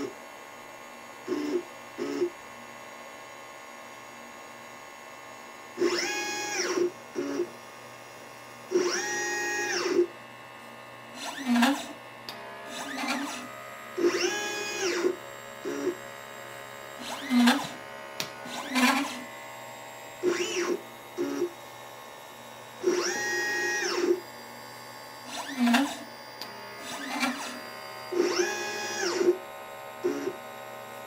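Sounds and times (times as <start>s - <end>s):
stepper motor whine: 1.3s - 2.4s, 5.8s - 7.6s, 8.7s - 10.1s, 11.1s - 31.0s.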